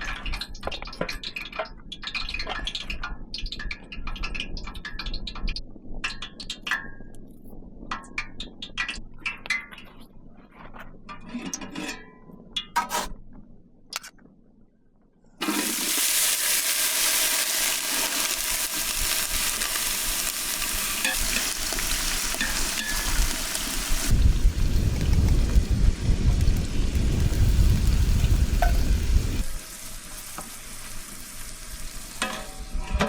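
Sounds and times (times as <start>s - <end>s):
food sizzling over fire: 15.4s - 33.0s
cooking utensils clinking: 20.5s - 24.1s, 32.2s - 33.0s
low rumble: 24.1s - 29.6s.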